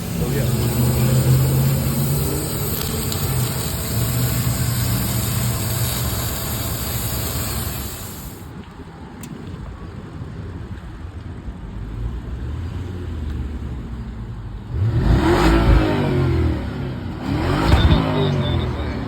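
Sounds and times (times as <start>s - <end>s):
car engine droning: 0.0s - 8.5s, 14.6s - 19.0s
high hiss: 0.0s - 8.5s.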